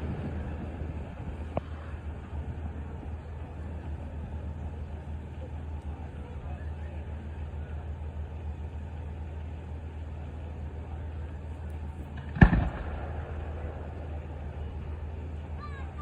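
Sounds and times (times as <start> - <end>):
truck engine idling: 0.0 - 16.0
firework bang: 12.2 - 13.9.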